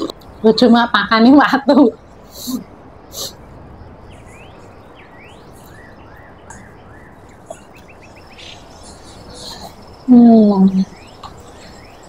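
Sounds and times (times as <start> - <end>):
small birds chirping: 0.0 - 12.0
steady background hiss: 0.0 - 12.0
ticking bird notes: 4.1 - 12.0.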